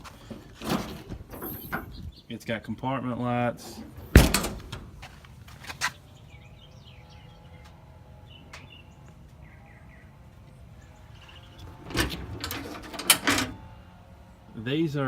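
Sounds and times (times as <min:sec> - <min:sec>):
low outdoor rumble: 0:00.0 - 0:15.0
loud knock: 0:04.2 - 0:04.8.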